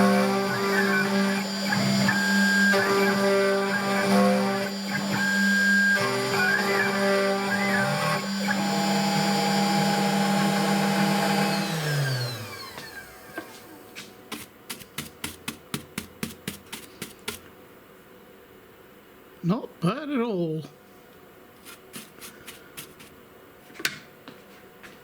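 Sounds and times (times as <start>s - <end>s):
router spindle whining: 0.0s - 13.8s.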